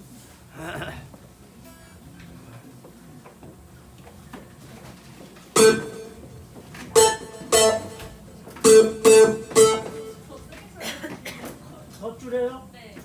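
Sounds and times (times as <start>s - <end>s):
guitar strumming chords: 5.6s - 6.2s, 7.0s - 10.3s
sharp strummed chord hits: 5.6s - 6.2s, 7.0s - 10.2s.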